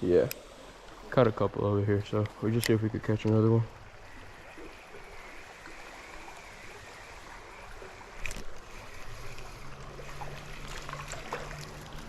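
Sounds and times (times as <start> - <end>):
creek water running: 0.0 - 12.0.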